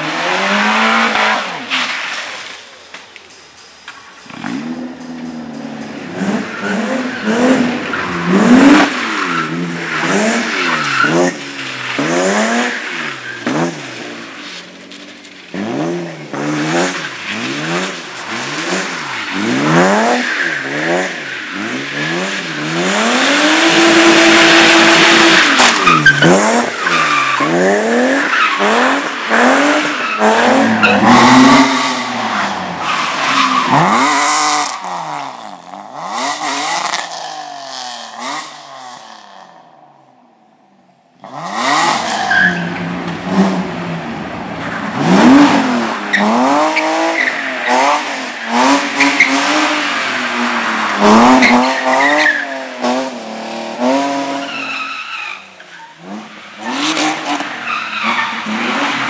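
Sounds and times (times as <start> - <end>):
car engines revving: 0.0 - 40.4, 41.0 - 59.0
tyre squeal: 23.7 - 34.2, 54.4 - 56.0.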